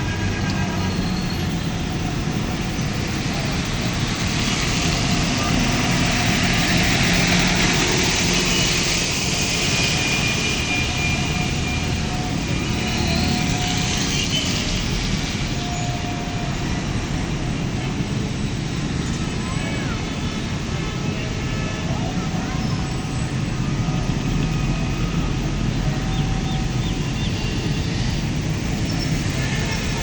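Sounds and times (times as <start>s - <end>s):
tyres spraying water: 0.0s - 17.1s
engine hum: 0.0s - 30.0s.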